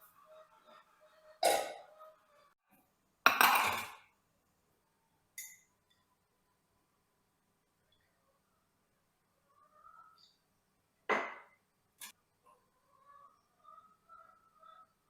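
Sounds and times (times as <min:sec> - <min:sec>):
dishes knocking and clinking: 0:03.3 - 0:04.0, 0:11.1 - 0:11.6.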